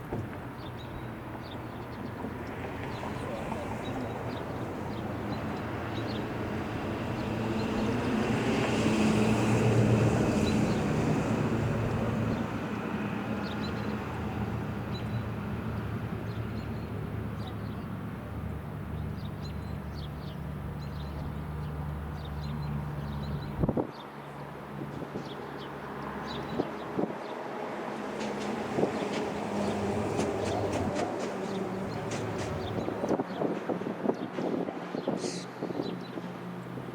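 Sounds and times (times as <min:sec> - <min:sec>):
vehicle passing by: 0:02.6 - 0:17.8, 0:20.6 - 0:33.3.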